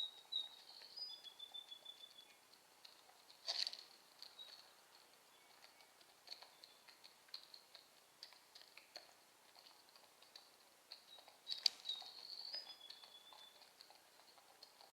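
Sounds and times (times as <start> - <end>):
faint high-pitched chirps: 0.0 - 2.4, 11.0 - 13.8.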